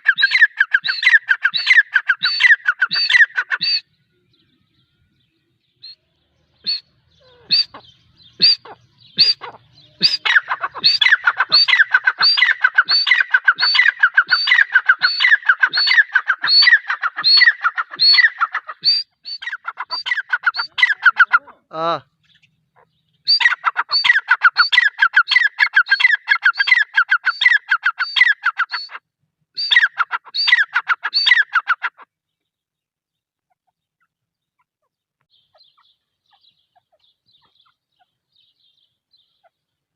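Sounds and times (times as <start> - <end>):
bird calling rapid repeated notes: 0.0 - 3.9, 6.6 - 22.0, 22.8 - 29.0, 29.6 - 32.0.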